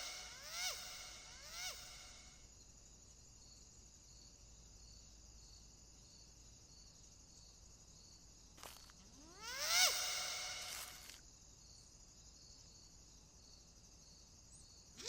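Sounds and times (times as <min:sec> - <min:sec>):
insect chirping: 0:00.0 - 0:15.0
steady high hiss: 0:09.6 - 0:11.2.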